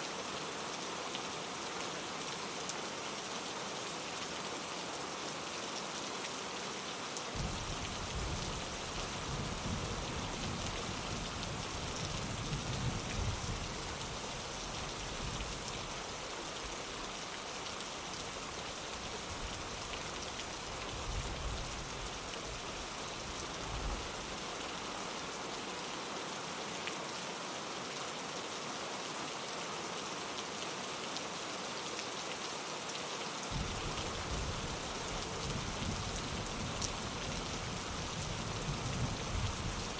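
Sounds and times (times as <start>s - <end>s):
rain on a window pane: 5.4s - 24.8s, 29.6s - 39.9s
low rumble of thunder: 7.4s - 11.4s, 33.5s - 34.7s.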